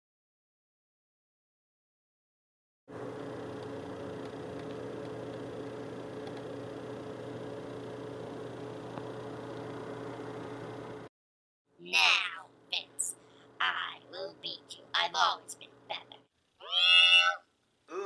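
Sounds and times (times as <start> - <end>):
low electrical hum: 2.9 - 11.1, 11.7 - 18.0.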